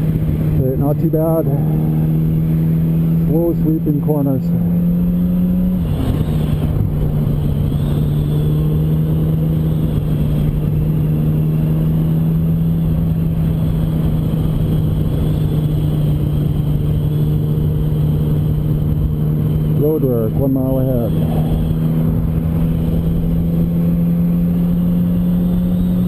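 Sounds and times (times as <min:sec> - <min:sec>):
motorcycle engine cruising: 0:00.0 - 0:26.0
wind noise: 0:05.4 - 0:19.8, 0:21.1 - 0:26.0.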